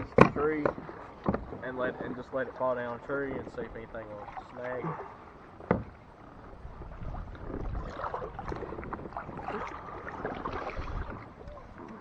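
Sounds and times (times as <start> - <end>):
knocks and clicks on kayak: 0.0 - 1.6, 5.6 - 6.0
water against hull: 0.0 - 12.0.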